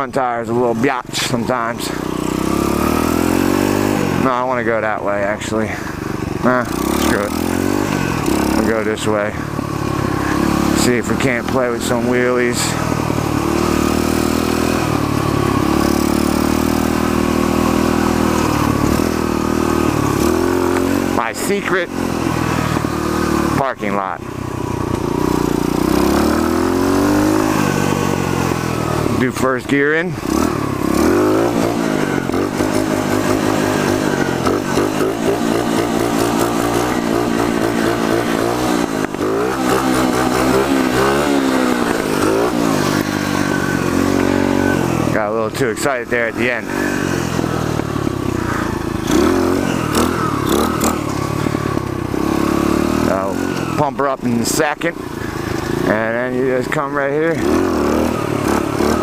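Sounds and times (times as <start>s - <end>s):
motorbike engine running: 0.0s - 59.0s.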